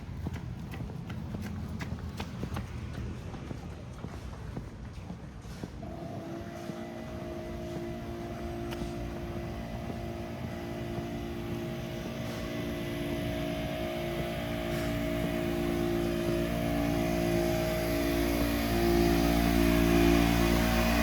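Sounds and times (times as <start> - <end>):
engine droning: 5.8 - 21.0.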